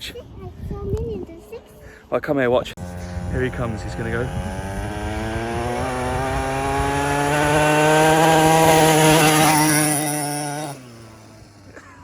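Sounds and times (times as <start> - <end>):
quad bike engine at high revs: 2.8 - 12.0.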